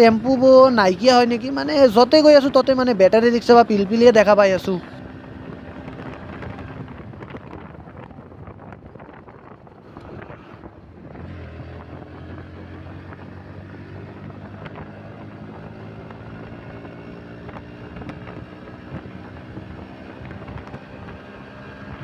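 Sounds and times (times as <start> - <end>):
motorcycle engine running: 0.0 - 22.0
wind on microphone: 4.8 - 11.3.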